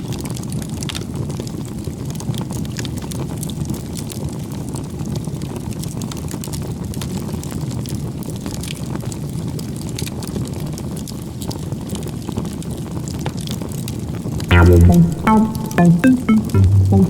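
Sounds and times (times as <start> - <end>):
background music: 14.5 - 17.0.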